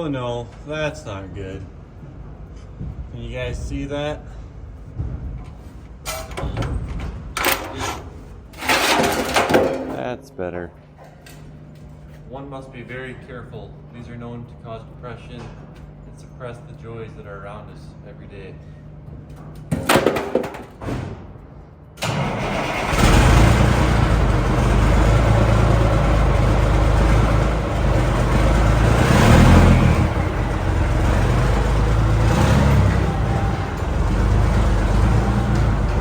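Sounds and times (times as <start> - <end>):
diesel truck engine starting and revving: 22.0 - 36.0.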